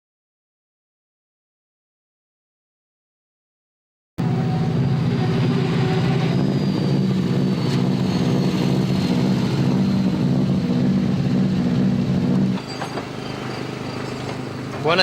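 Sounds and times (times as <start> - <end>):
car engine droning steadily: 4.2 - 15.0.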